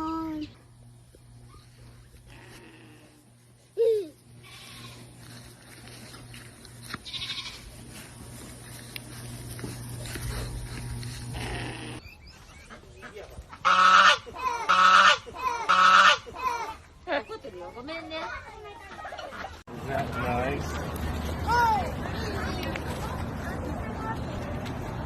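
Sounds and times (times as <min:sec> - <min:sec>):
goat bleating: 0:04.4 - 0:05.3, 0:06.8 - 0:07.8, 0:11.3 - 0:12.0.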